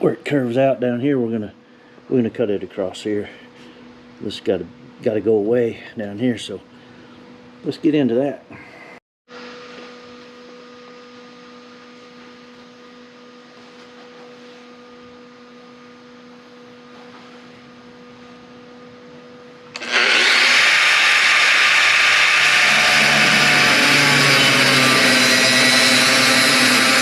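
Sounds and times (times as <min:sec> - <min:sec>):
steady machine hum: 0:10.2 - 0:27.0
power tool cutting sheet metal: 0:19.8 - 0:27.0.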